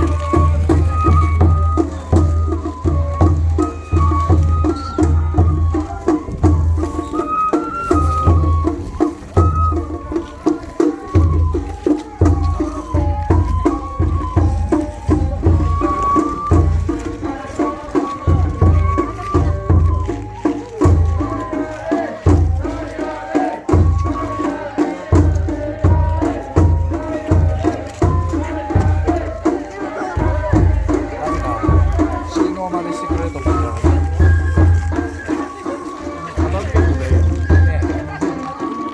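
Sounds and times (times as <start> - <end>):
big drum beating heavily: 0.0 - 38.7
high bamboo flute melody: 0.0 - 38.9.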